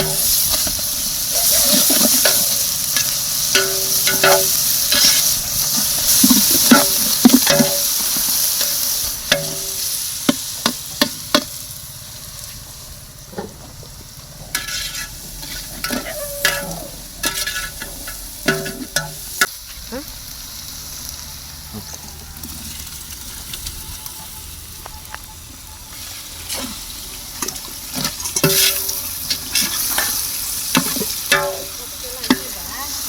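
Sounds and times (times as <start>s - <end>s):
metal ladle scraping and clinking pot: 0.0s - 9.9s, 14.5s - 19.5s, 27.4s - 32.4s
food sizzling in hot oil: 0.0s - 33.0s.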